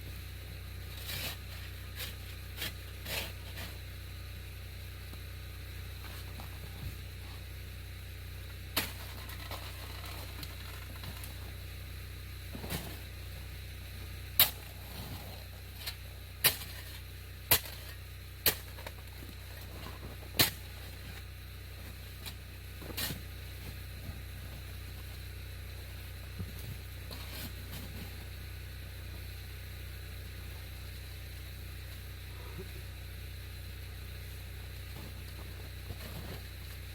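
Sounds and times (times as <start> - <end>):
steady low hum: 0.0 - 36.9
snow shovel chopping hard snow: 8.7 - 9.9, 12.5 - 13.1.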